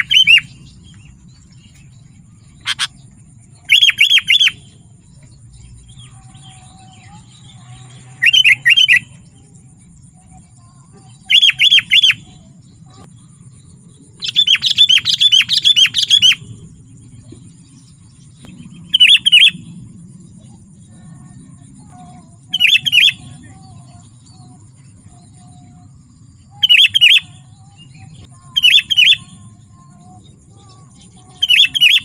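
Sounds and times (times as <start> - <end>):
bird chattering calls: 0.0 - 0.8, 2.5 - 4.8, 14.2 - 16.4.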